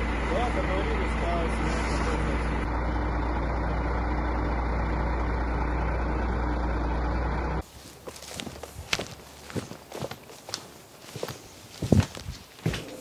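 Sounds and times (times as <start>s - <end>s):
diesel truck engine idling: 0.0s - 13.0s
faint crunching footsteps: 7.6s - 13.0s.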